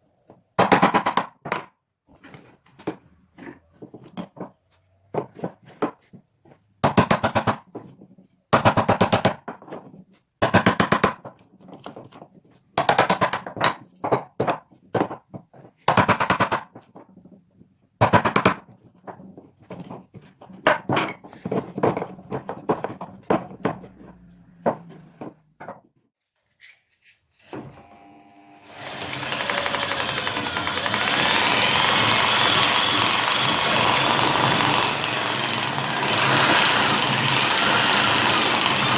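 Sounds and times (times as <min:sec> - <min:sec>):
power tool rattling on wood: 0:27.6 - 0:38.9.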